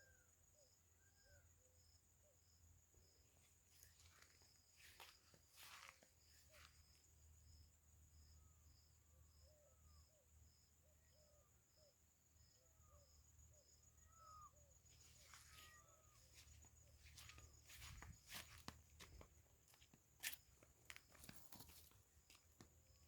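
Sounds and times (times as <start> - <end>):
faint insect chirping: 0.0 - 23.0
small animal calls: 14.0 - 18.5.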